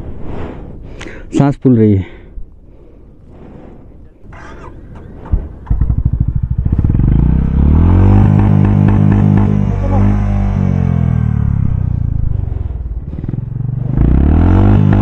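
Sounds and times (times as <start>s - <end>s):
motorcycle engine revving: 4.2s - 15.0s.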